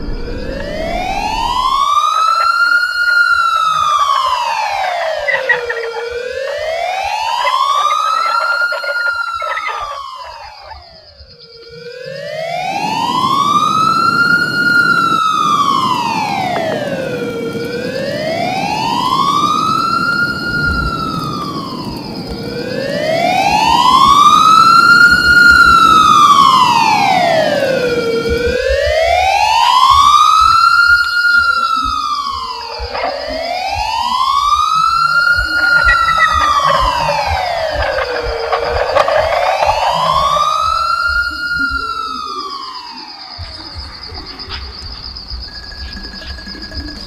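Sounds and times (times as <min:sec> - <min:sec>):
low rumble: 0:00.0 - 0:07.6, 0:32.2 - 0:41.9
high whine: 0:00.0 - 0:47.0
wailing siren: 0:00.0 - 0:47.0.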